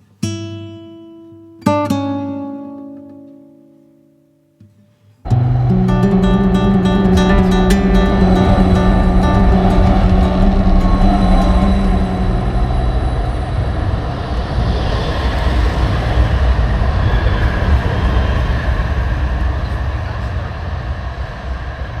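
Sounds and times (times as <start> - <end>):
tram rumbling on rails: 5.3 - 22.0.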